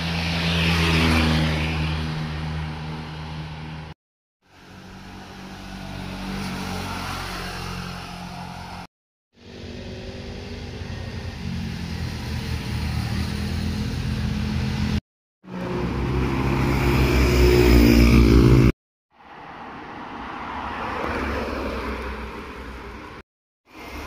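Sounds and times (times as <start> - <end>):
motorcycle engines passing: 4.6 - 18.7.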